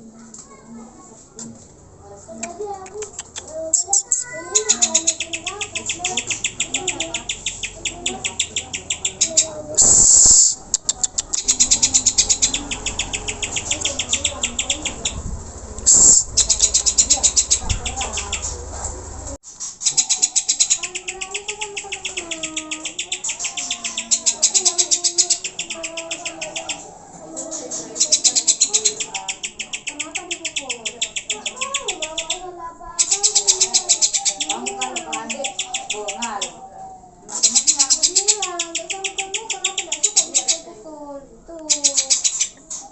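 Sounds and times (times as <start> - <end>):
bird singing high chattering notes: 3.7 - 15.3, 15.9 - 18.6, 19.8 - 36.6, 37.3 - 40.8, 41.6 - 42.6
bird singing sharp high notes: 11.4 - 15.2.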